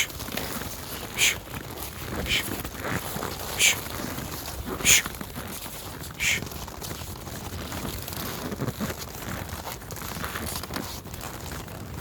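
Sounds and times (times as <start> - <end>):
horse hooves on snow: 0.0 - 12.0
person hushing: 1.2 - 1.4, 2.2 - 2.5, 3.6 - 3.8, 4.8 - 5.1, 6.2 - 6.4.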